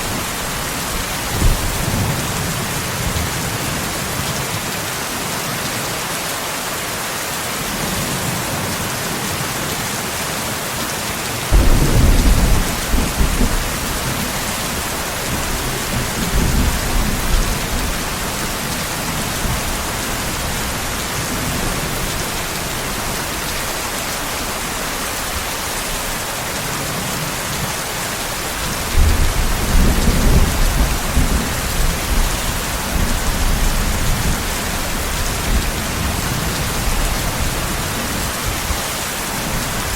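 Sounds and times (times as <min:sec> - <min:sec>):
heavy rain hissing: 0:00.0 - 0:39.9
rolls of thunder: 0:11.6 - 0:15.5.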